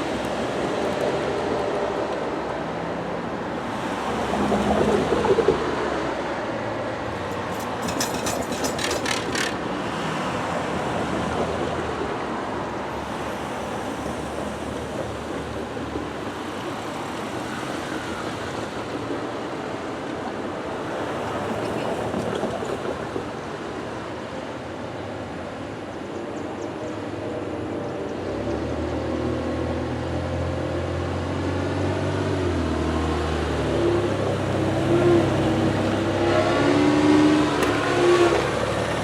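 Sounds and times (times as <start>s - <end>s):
passenger train rumbling past: 34.3s - 39.0s.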